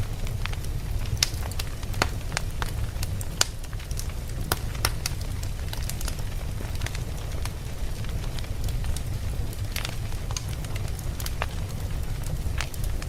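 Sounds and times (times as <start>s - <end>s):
burning logs popping: 0.0s - 13.0s
campfire crackling: 0.0s - 13.0s.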